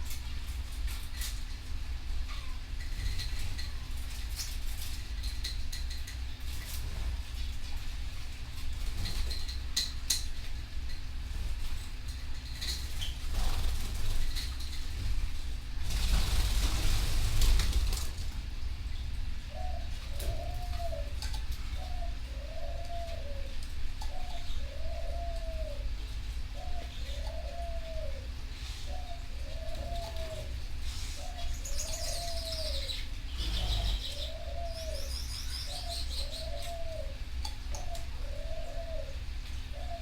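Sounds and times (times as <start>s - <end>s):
songbirds twittering: 0.1s - 7.1s, 8.5s - 40.0s
dove cooing: 19.5s - 40.0s.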